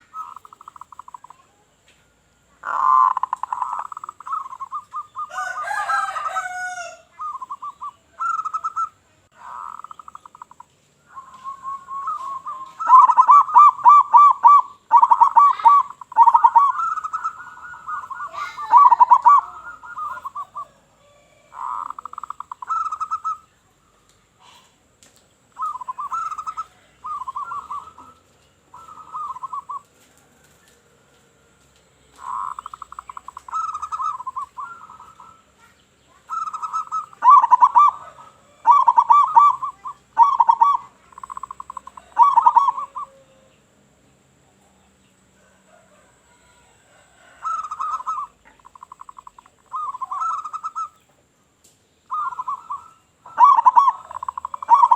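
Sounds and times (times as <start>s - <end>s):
doves cooing: 0.0s - 1.8s, 2.6s - 43.6s, 45.2s - 51.1s, 52.1s - 54.9s
bird call with sliding pitch: 11.1s - 20.7s, 52.1s - 54.9s.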